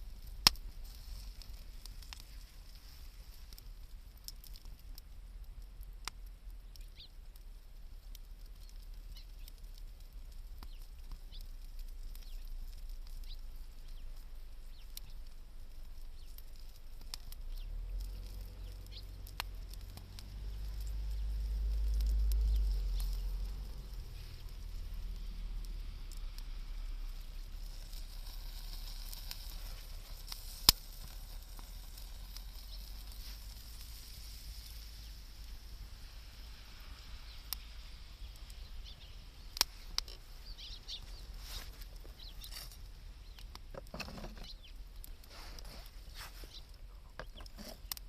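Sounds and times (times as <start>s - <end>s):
campfire crackling: 0.0s - 48.0s
bird chirps: 6.8s - 7.1s, 38.5s - 39.5s, 40.4s - 41.3s.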